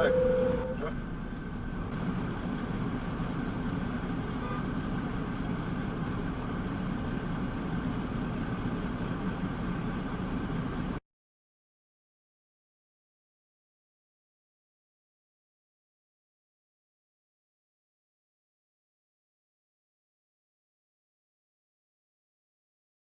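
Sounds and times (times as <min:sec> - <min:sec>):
road noise: 0:00.0 - 0:11.0
vehicle engine: 0:00.0 - 0:11.0.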